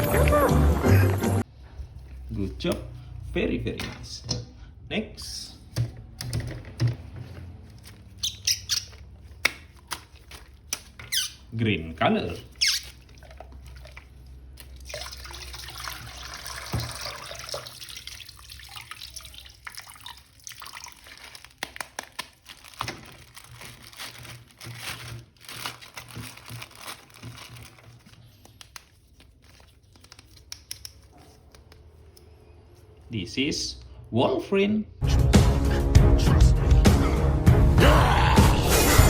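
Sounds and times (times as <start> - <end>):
water running and splashing: 12.6 - 21.9.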